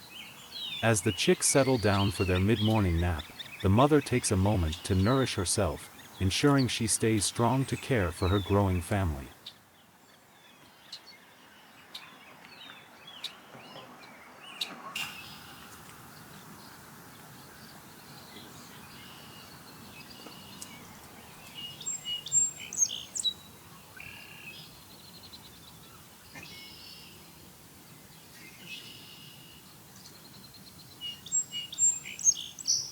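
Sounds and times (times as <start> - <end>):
steady outdoor hiss: 0.0 - 32.9
birds chirping and calling: 0.4 - 9.2, 31.0 - 32.9.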